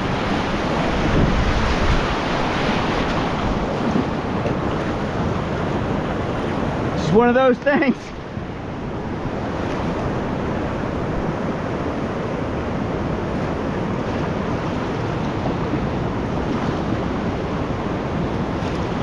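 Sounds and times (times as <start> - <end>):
whitewater rapids roaring: 0.0 - 19.0.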